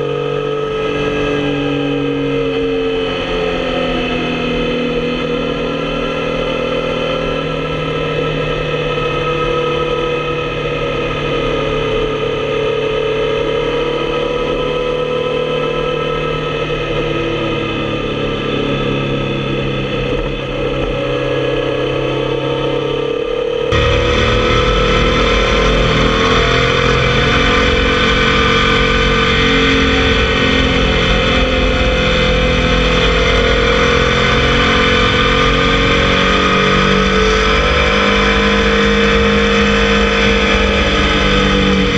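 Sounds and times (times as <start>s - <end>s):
motorcycle engine riding: 23.4s - 41.9s.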